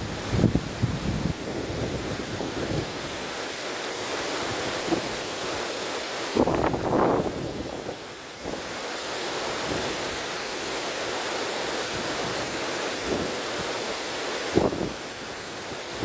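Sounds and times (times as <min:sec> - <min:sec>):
wind blowing: 0:00.0 - 0:03.4, 0:06.4 - 0:08.7
river water rushing: 0:00.0 - 0:16.0.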